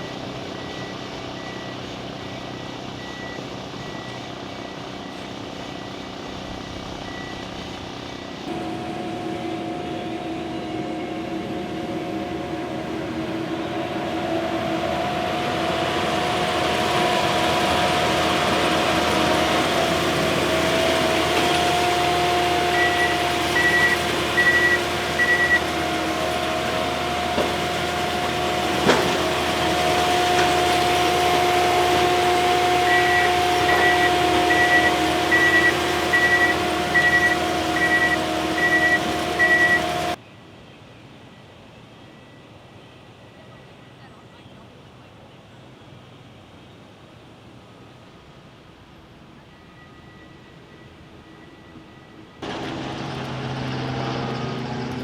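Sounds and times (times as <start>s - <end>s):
heavy machine engine running: 0.0s - 40.2s, 50.4s - 55.0s
reversing alarm beeping: 0.0s - 40.2s.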